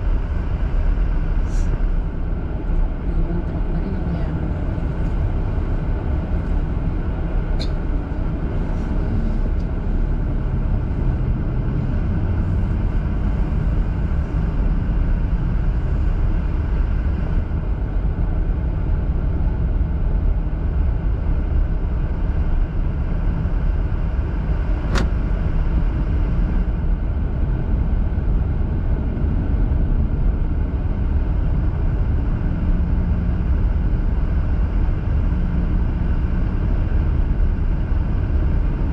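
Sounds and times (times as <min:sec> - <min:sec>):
car cabin road and engine rumble: 0:00.0 - 0:38.9
sharp click: 0:24.9 - 0:25.1.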